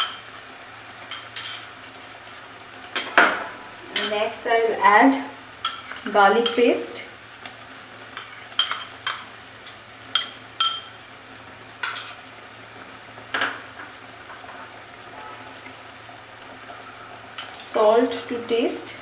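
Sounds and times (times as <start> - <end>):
spoon clinking against metal pan: 8.2 - 9.2.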